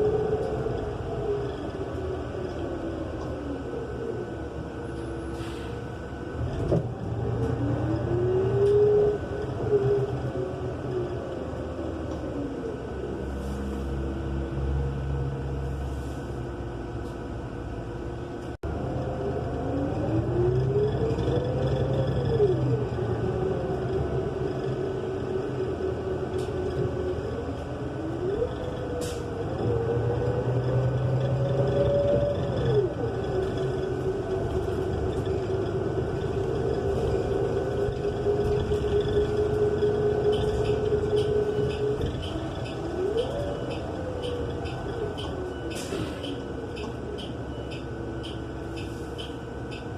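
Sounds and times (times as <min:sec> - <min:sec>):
bus engine and transmission whine: 0:00.0 - 0:49.9.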